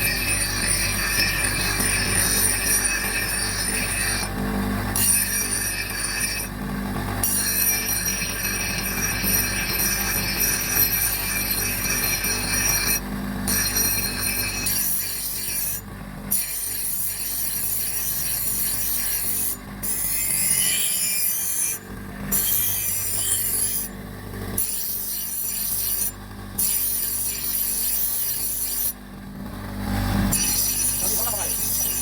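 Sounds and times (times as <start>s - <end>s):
file scraping strokes: 30.2s - 32.0s.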